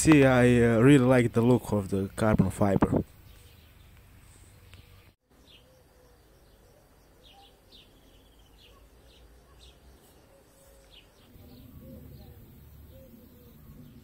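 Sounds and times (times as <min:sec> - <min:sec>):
outdoor background noise: 0:00.0 - 0:14.0
faint high bird chirps: 0:03.3 - 0:14.0.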